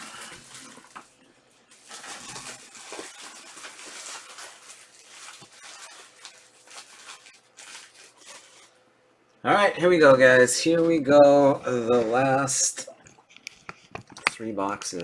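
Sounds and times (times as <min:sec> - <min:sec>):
plastic wrapping crinkling: 0:00.0 - 0:08.8.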